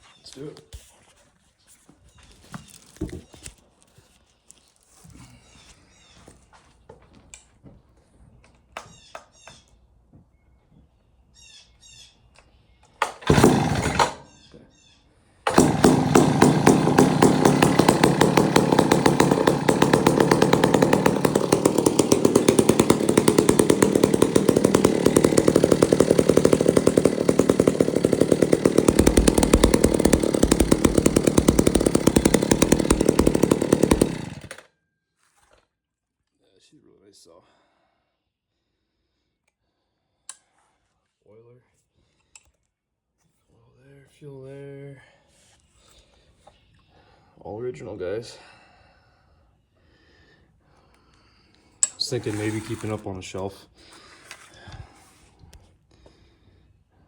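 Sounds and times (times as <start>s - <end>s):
chainsaw engine running: 13.0s - 14.3s, 15.5s - 34.7s, 52.0s - 53.4s.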